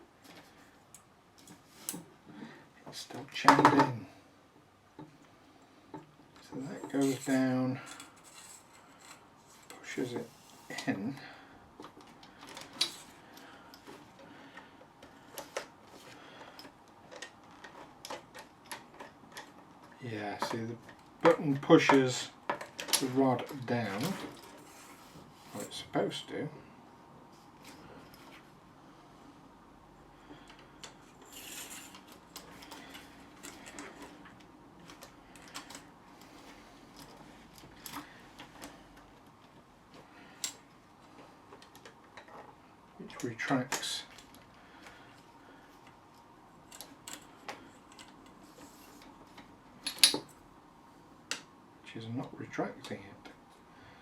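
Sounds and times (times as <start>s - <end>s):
scraping rustle: 6.6s - 10.9s.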